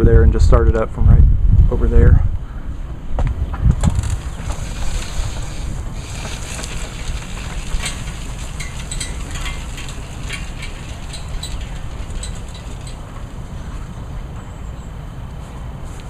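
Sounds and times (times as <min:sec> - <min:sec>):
wind buffeting microphone: 0:00.0 - 0:16.0
faint clicks and ticks: 0:03.8 - 0:14.5.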